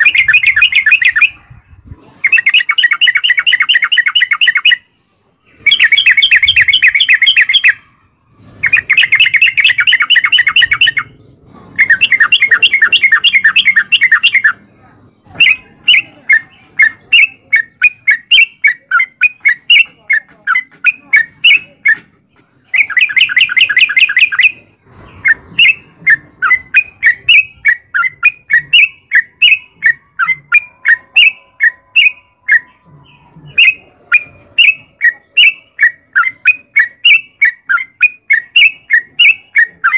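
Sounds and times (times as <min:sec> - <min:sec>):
bulbul chattering trills: 0:00.0 - 0:39.9
bird short chirps: 0:05.5 - 0:14.6.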